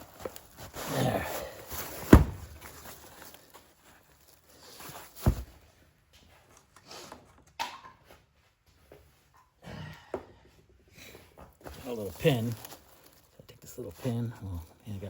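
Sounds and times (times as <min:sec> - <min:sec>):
faint rustling and scraping: 0:00.0 - 0:09.4, 0:11.0 - 0:15.0
dull thump: 0:02.0 - 0:02.7, 0:05.2 - 0:05.6.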